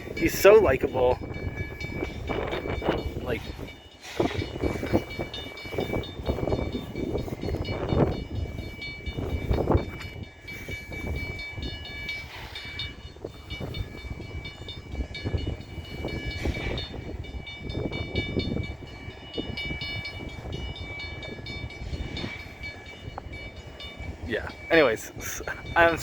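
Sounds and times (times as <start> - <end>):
crossing bell ringing: 0.0 - 26.0
freight train rumbling: 0.0 - 26.0.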